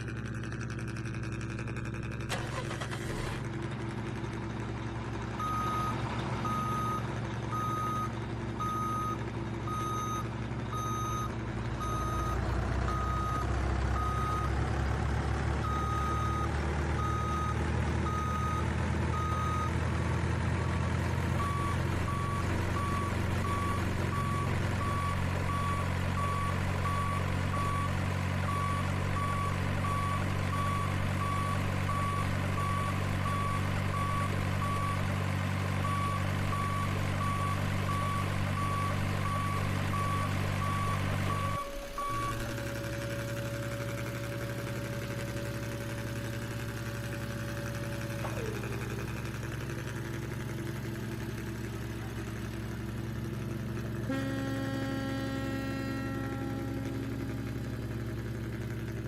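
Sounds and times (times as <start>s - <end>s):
truck engine running: 0.0s - 59.0s
reversing beeper: 5.4s - 14.6s, 35.8s - 49.2s.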